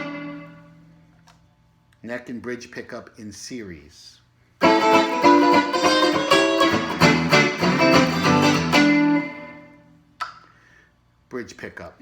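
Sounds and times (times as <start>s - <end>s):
clean electric guitar notes and chords: 0.0s - 1.0s, 4.6s - 10.0s.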